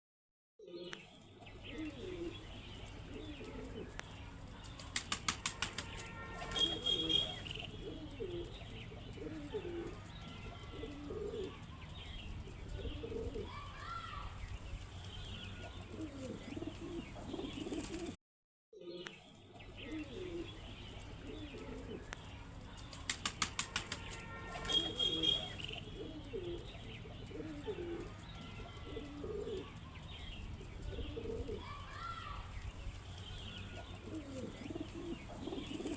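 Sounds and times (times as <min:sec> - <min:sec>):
pigeons cooing: 0:00.7 - 0:13.6, 0:15.2 - 0:18.2, 0:18.8 - 0:31.8, 0:33.1 - 0:35.9
pigeon wing claps: 0:04.6 - 0:07.7, 0:22.8 - 0:25.8.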